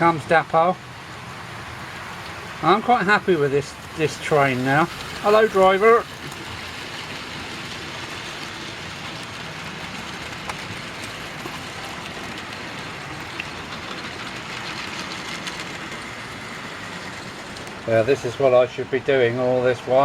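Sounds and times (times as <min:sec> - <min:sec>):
model train motors whirring: 0:00.0 - 0:20.0.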